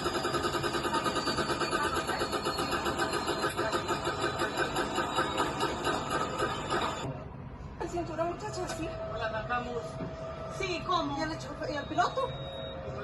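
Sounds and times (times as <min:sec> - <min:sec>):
helicopter engine and rotor: 0:00.0 - 0:07.2.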